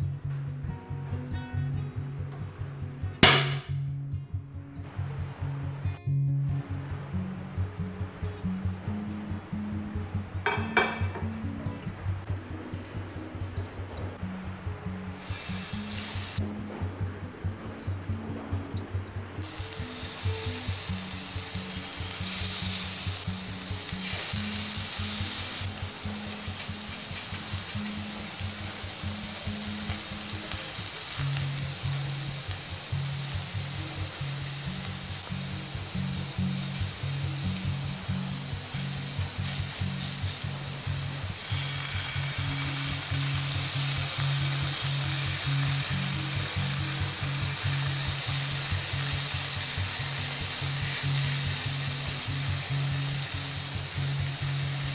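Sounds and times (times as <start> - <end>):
background music: 0.0 - 54.9
food sizzling in oil: 15.1 - 16.4, 19.4 - 54.9.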